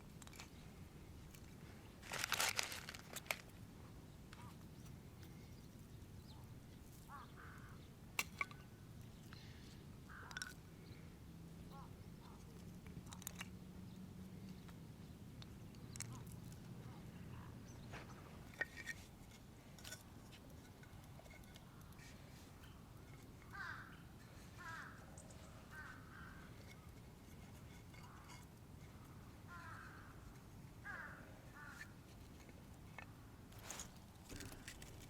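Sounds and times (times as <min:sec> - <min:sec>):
faint low hum: 0:02.6 - 0:35.0
crows cawing: 0:07.1 - 0:07.8, 0:10.1 - 0:10.5, 0:23.5 - 0:24.0, 0:24.6 - 0:26.6, 0:29.5 - 0:30.1, 0:30.8 - 0:31.9.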